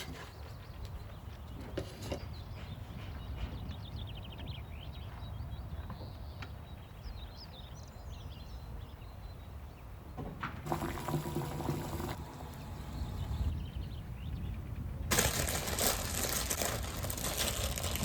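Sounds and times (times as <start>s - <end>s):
liquid pouring: 10.7s - 12.7s.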